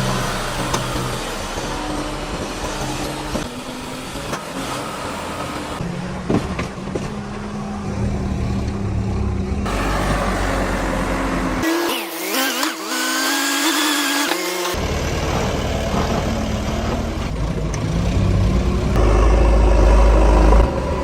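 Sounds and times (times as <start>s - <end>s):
tractor diesel engine running: 0.0s - 11.6s, 14.7s - 21.0s.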